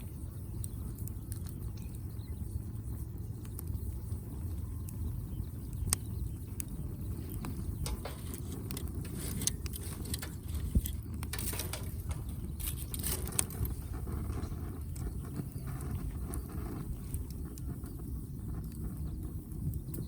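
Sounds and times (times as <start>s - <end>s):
firewood crackling and popping: 0.0s - 20.0s
low steady rumble: 0.0s - 20.0s.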